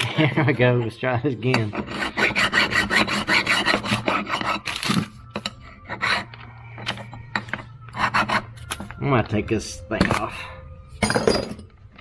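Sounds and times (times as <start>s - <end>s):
abrasive rasping on metal: 1.6s - 8.8s.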